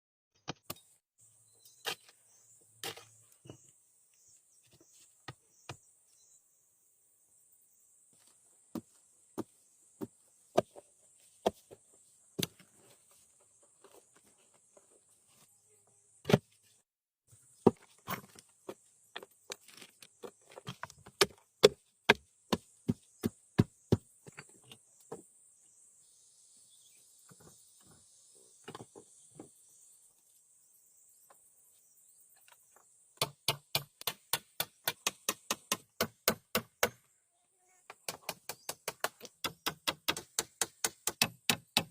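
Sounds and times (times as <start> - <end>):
tool striking wood: 38.1 - 41.9.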